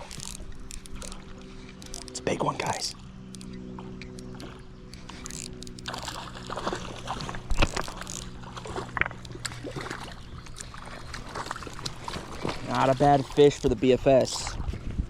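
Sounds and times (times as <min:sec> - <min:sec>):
steady low hum: 0:00.0 - 0:15.0
small water splashes: 0:05.8 - 0:15.0.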